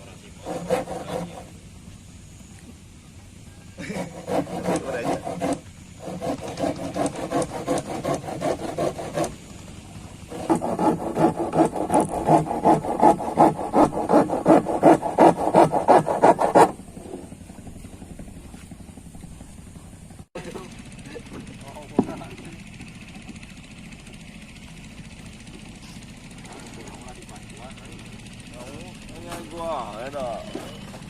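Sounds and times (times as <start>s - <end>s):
hand tool rasping wood: 0.2s - 1.6s, 3.8s - 9.5s, 10.2s - 18.6s.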